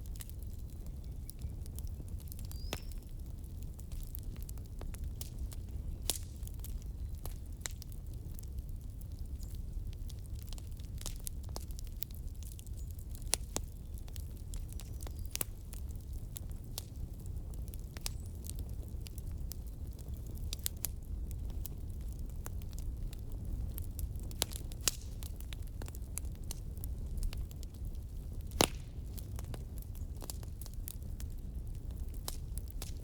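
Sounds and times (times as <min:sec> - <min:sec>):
firewood popping and crackling: 0:00.0 - 0:33.0
flames rumbling: 0:00.0 - 0:33.0.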